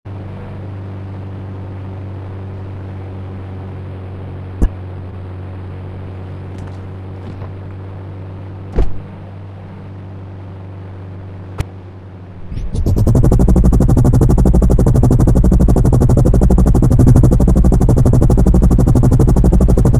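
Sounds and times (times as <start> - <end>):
low engine hum: 0.1 - 19.9.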